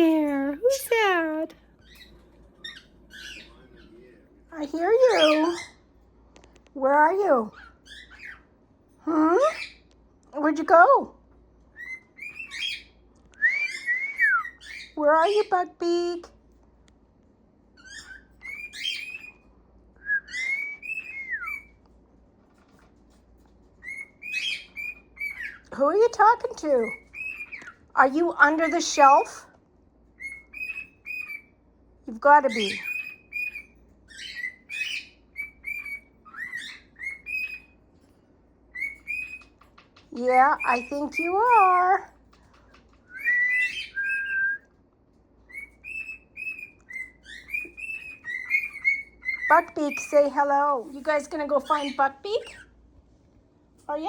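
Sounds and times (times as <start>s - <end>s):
bird chirping whistles: 11.7s - 14.9s, 20.0s - 21.8s, 30.2s - 31.5s, 32.6s - 37.8s, 38.7s - 39.5s, 43.0s - 44.7s, 45.5s - 50.3s
bird whistling: 11.7s - 15.0s, 17.8s - 19.4s, 20.0s - 21.8s, 30.2s - 31.5s, 32.4s - 37.8s, 38.7s - 39.5s, 40.2s - 42.0s, 43.0s - 44.7s, 45.5s - 50.4s.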